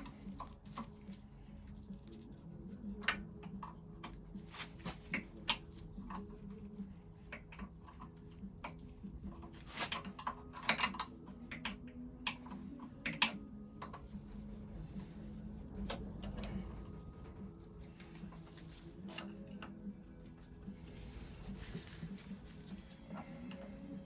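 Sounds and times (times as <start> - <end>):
low hum: 11.9 - 24.0.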